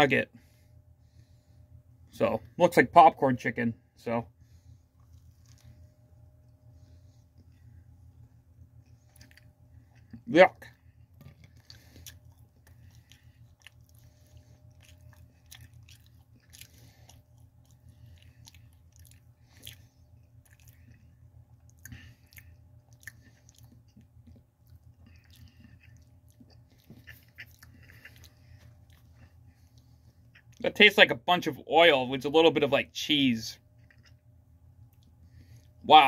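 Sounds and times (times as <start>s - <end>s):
low steady hum: 0.0s - 36.0s
person chewing crunchy food: 4.9s - 7.9s, 8.6s - 30.6s, 33.7s - 35.8s.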